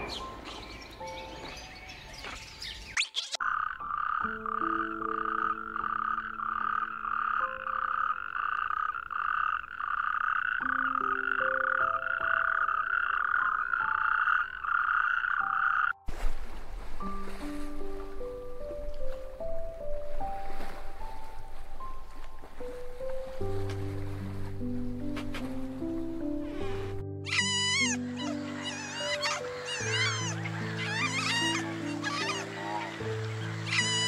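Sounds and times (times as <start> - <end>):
toad trilling: 3.0 - 16.0, 27.3 - 32.9, 33.6 - 34.0
soft sustained music notes: 16.0 - 34.0.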